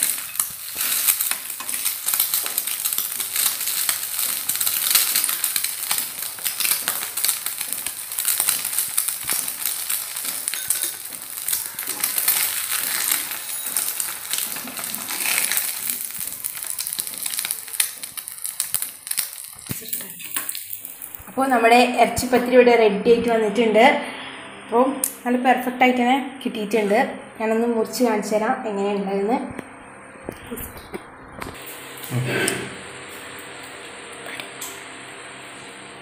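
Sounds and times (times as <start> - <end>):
food sizzling in oil: 0.0 - 22.4, 31.6 - 36.0.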